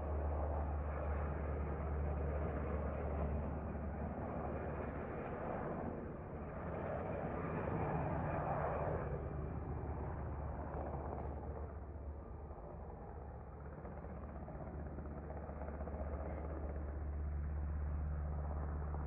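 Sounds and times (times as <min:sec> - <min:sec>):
helicopter flying: 0:00.0 - 0:19.0.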